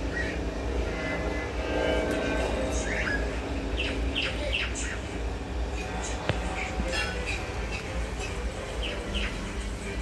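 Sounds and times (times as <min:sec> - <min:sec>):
steady low hum: 0:00.0 - 0:10.0
bird chirping: 0:02.7 - 0:05.1, 0:05.7 - 0:09.6.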